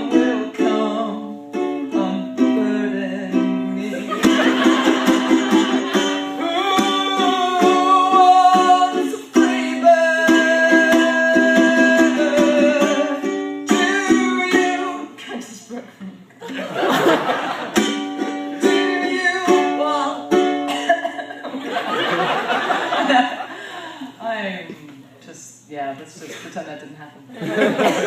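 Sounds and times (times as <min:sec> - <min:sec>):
ukulele strumming: 0:00.0 - 0:15.3, 0:17.1 - 0:21.4.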